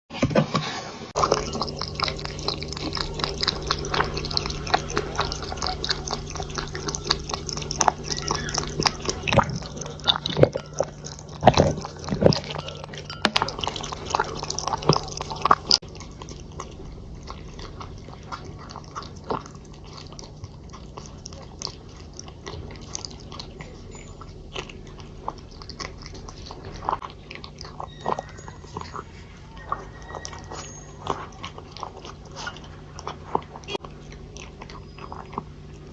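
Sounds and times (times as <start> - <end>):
steady low hum: 1.0 - 35.9
cat lapping from a dish: 1.2 - 28.3.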